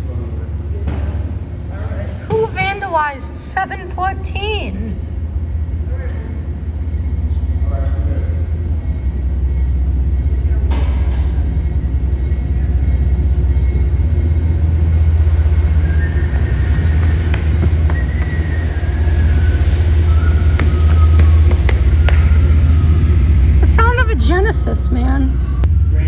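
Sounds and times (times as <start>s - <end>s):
diesel locomotive rumbling: 0.0s - 26.0s
faint high squeals: 5.9s - 23.9s.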